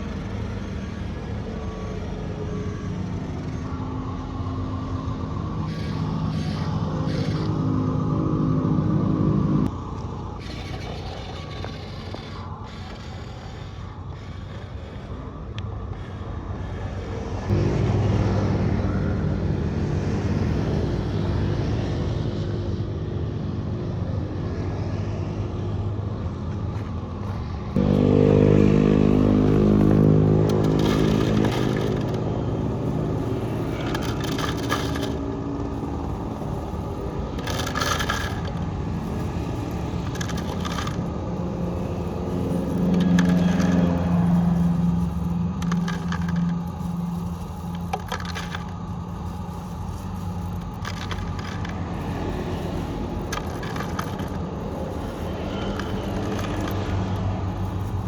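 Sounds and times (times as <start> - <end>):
electric motor whining: 0.0 - 18.1, 27.8 - 58.0
scraping and knocking noises: 9.6 - 17.5, 26.7 - 58.0.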